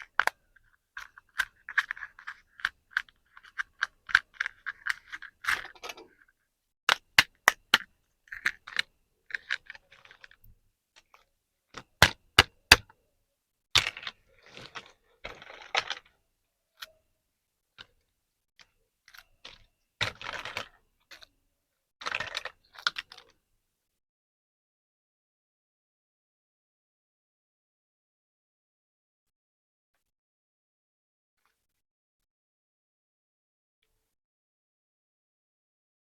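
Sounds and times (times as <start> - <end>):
plastic toy parts clicking: 0.0 - 6.3, 6.9 - 10.4.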